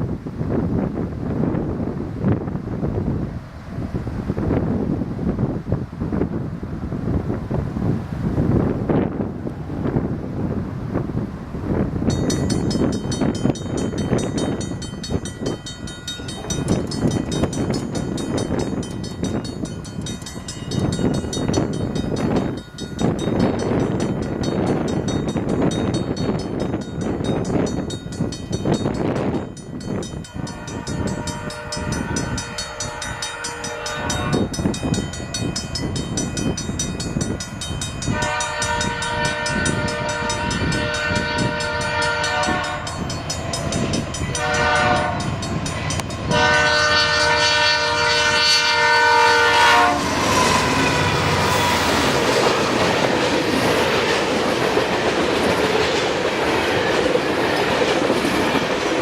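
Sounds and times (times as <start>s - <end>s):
train rumble: 0.0s - 59.0s
locomotive air horn blasts: 30.3s - 34.6s, 38.1s - 43.0s, 44.3s - 51.9s.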